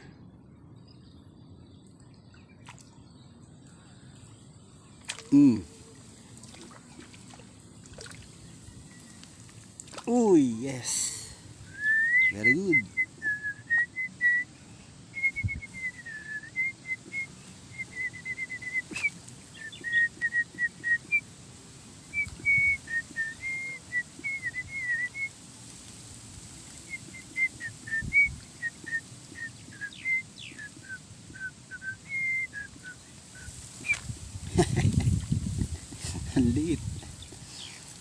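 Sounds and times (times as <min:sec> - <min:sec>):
songbird whistling: 0:08.1 - 0:09.5, 0:11.6 - 0:14.5, 0:15.1 - 0:21.2, 0:22.1 - 0:25.3, 0:26.7 - 0:34.1.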